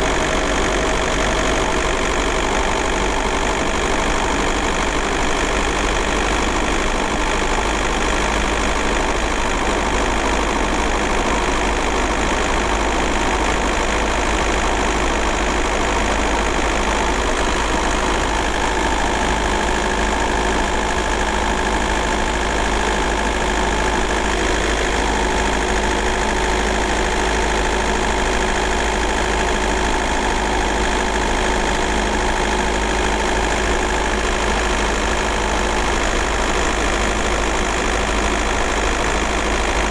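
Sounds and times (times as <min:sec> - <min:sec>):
diesel engine idling with knock: 0:00.0 - 0:39.9.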